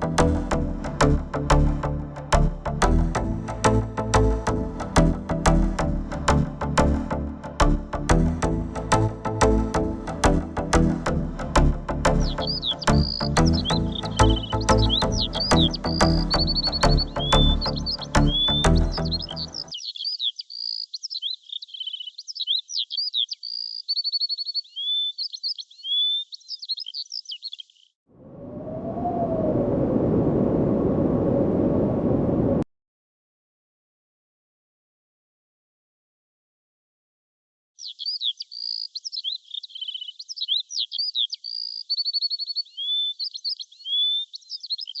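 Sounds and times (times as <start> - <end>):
songbird singing: 0.0 - 28.0, 37.8 - 45.0.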